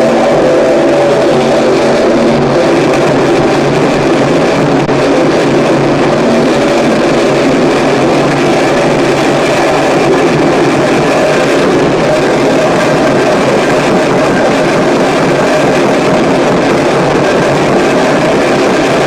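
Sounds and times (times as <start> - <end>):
harsh distorted noise music: 0.0 - 19.0
low humming tones: 0.0 - 19.0.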